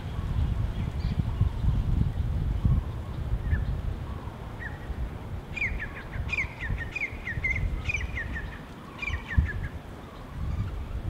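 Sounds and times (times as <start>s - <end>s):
songbird chirping: 2.7s - 11.0s.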